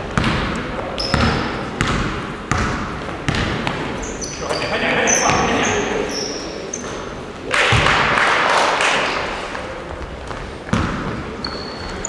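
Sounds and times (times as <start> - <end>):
basketball bouncing on floor: 0.1 - 3.9, 7.7 - 8.1, 10.2 - 11.9
short high squeaks: 11.4 - 12.0.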